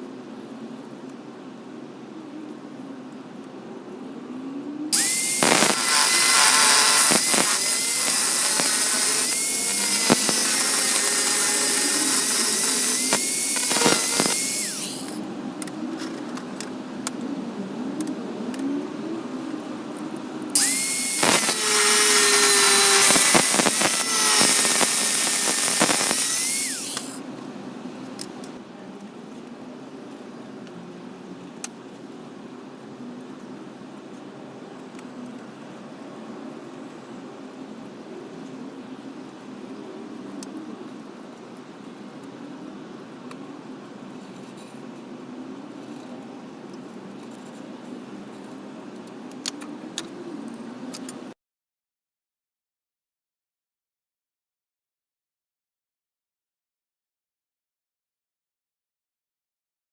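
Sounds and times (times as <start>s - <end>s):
belt grinder motor whine: 5.0s - 15.2s, 20.6s - 27.2s
harsh grinding hiss: 5.0s - 15.2s, 20.6s - 27.2s.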